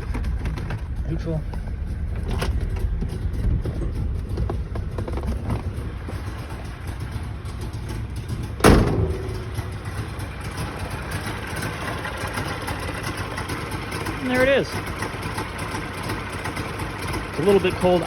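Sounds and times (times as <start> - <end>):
two-stroke engine idling: 0.0 - 18.0
loud clunk with ring: 8.6 - 9.8.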